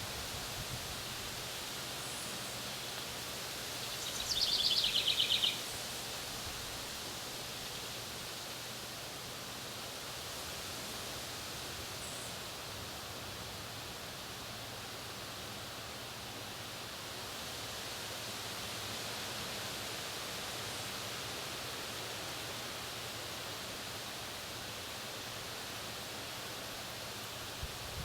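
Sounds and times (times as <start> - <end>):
steady outdoor hiss: 0.0 - 28.0.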